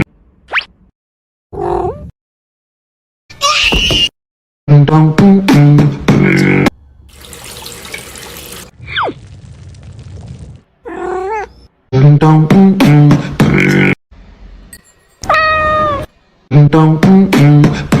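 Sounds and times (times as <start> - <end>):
cat meows: 15.3 - 16.1.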